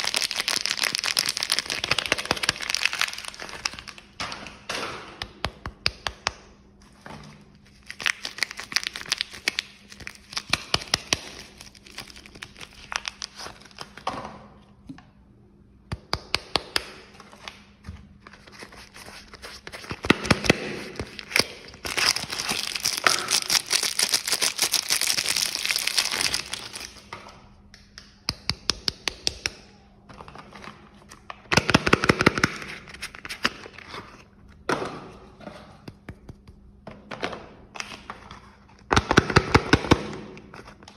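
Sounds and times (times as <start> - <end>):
wrapper crinkling and tearing: 0.0 - 4.2, 7.7 - 14.0, 18.4 - 27.1.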